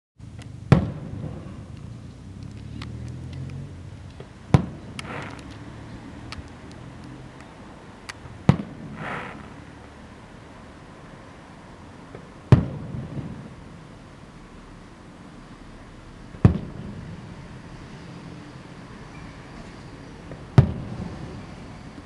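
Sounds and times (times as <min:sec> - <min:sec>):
small firework cracks: 0:00.7 - 0:05.7, 0:06.3 - 0:09.6
loud firework shell bursts: 0:04.5 - 0:05.6, 0:08.4 - 0:09.7, 0:20.5 - 0:21.5
firework crackle: 0:04.5 - 0:05.7, 0:08.1 - 0:09.9.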